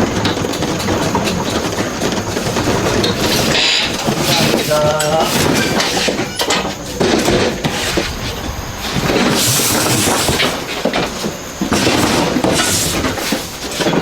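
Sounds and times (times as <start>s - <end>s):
factory machine rattling and screeching: 0.0s - 14.0s
high hiss: 0.0s - 14.0s.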